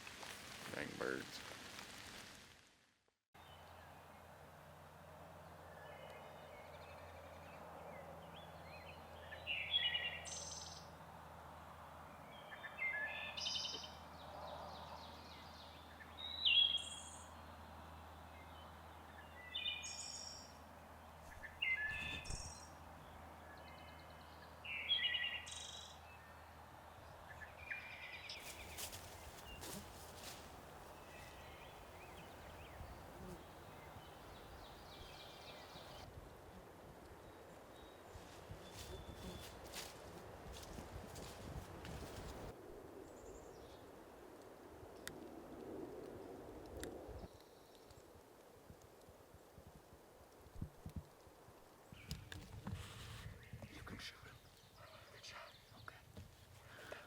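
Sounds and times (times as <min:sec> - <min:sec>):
songbird chirping: 0:12.2 - 0:36.1, 0:37.2 - 0:42.5, 0:53.4 - 0:57.0
soft clicks and rustles: 0:28.4 - 0:32.4.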